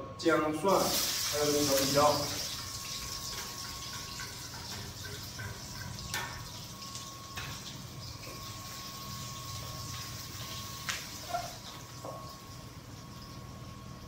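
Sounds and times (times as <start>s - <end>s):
steady hum: 0.0s - 14.0s
food sizzling in hot oil: 0.8s - 14.0s.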